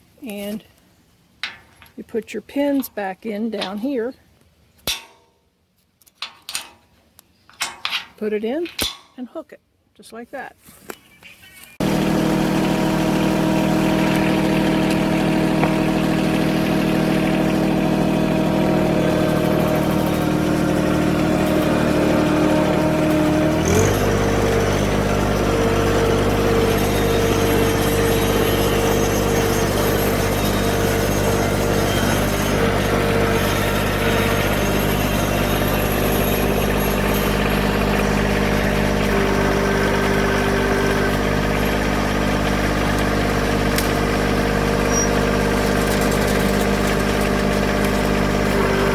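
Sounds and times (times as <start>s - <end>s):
tractor diesel engine running: 11.8s - 48.9s.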